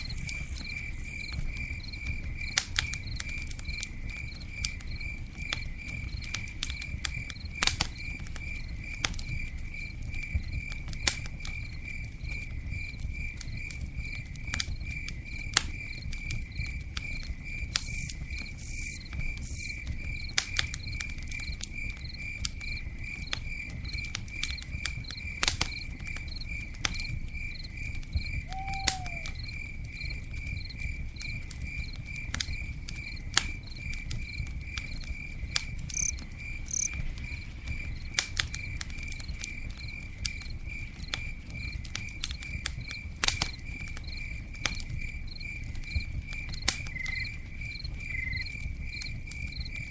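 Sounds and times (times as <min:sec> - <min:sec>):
campfire crackling: 0:00.0 - 0:49.9
cricket chirping: 0:00.0 - 0:49.9
short falling call: 0:28.5 - 0:29.4.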